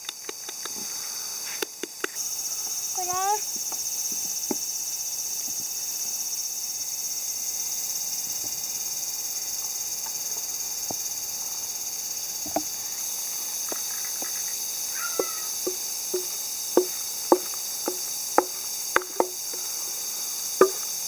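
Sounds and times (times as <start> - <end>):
insect chorus: 0.0 - 21.0
light knocks: 15.2 - 19.6.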